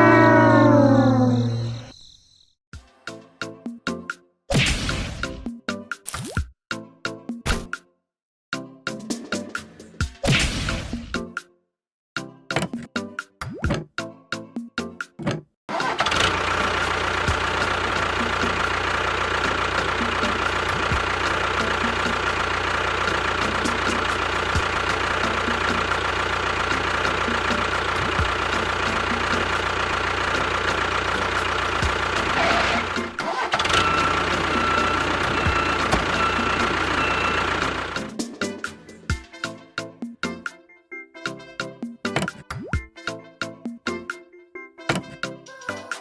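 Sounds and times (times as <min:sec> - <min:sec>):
engine running steadily: 0:15.7 - 0:38.6.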